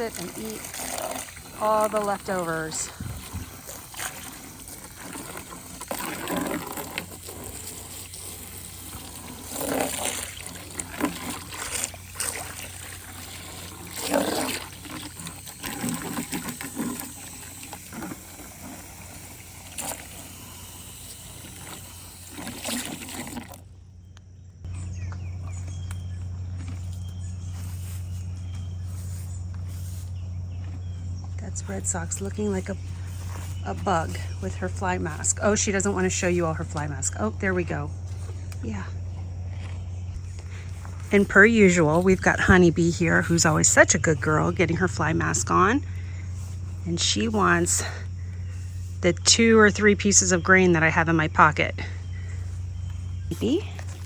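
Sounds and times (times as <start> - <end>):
buckets splashing: 0.0 - 20.4, 21.1 - 23.8
hose water spraying into buckets: 0.0 - 23.8, 26.5 - 30.3, 31.3 - 38.9, 39.6 - 54.0
low hum: 0.0 - 54.0.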